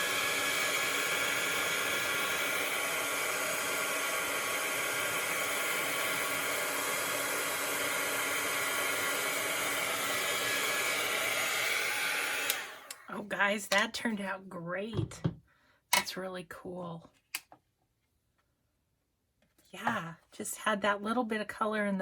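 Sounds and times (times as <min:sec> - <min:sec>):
heat tool blowing air: 0:00.0 - 0:13.0.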